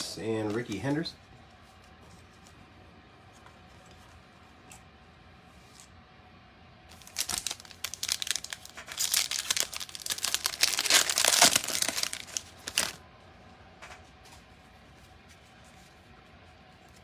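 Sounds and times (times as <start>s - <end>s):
foil wrapper crinkling and tearing: 6.9s - 13.0s.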